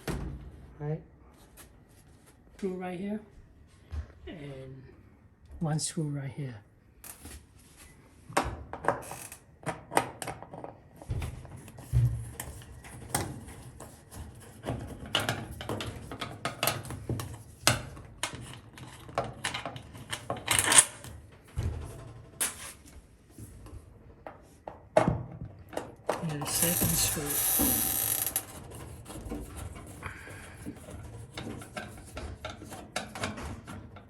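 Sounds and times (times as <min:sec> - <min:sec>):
clicks and knocks on sheet metal: 0:30.7 - 0:34.0.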